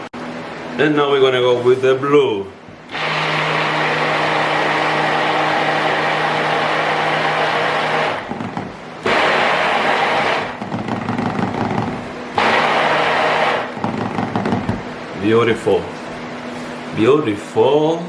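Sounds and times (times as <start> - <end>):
handheld electric mixer running: 2.9 - 14.8.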